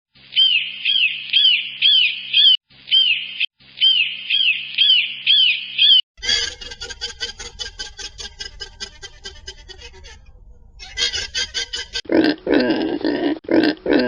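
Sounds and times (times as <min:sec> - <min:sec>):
hawk calling: 0:05.3 - 0:12.0
harsh rapid pulsing sound: 0:06.2 - 0:12.0.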